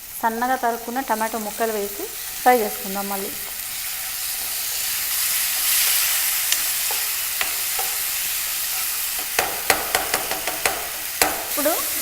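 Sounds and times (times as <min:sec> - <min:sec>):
chicken sizzling in frying pan: 0:00.0 - 0:12.0
spatula clicking against pan: 0:06.5 - 0:08.2, 0:09.2 - 0:11.6.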